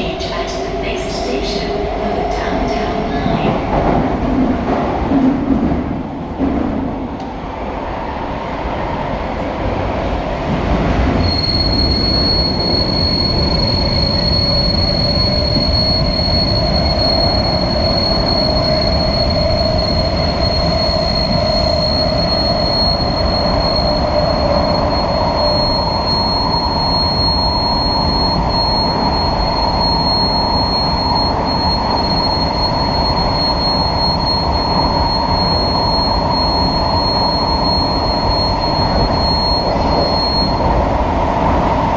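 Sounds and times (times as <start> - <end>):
metro train running: 0.0 - 41.9.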